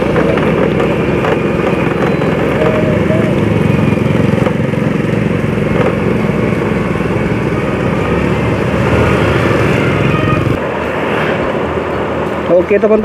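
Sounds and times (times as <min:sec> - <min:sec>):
small motorcycle engine running: 0:00.0 - 0:10.6
road noise: 0:00.0 - 0:13.0.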